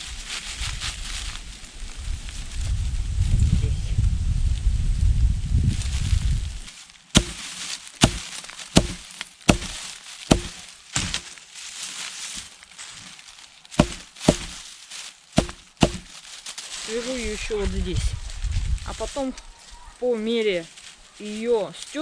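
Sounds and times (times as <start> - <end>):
wind rumble on microphone: 0.0 - 6.7, 17.2 - 19.3
dry grass snapping and clicking: 7.2 - 11.6, 13.7 - 16.6.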